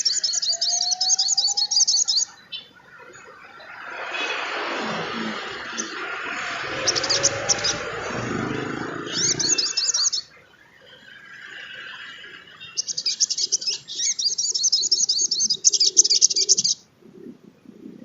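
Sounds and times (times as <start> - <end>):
bird twittering song: 0.0 - 17.8
low rumble: 3.3 - 10.0.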